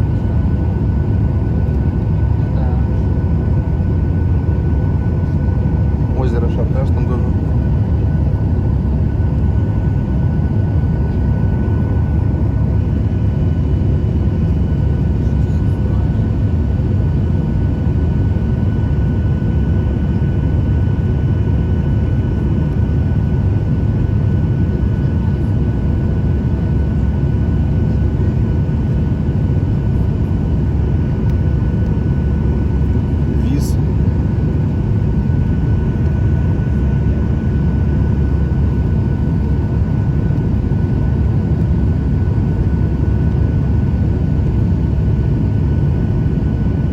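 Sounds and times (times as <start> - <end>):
airplane cabin engine rumble: 0.0 - 46.9.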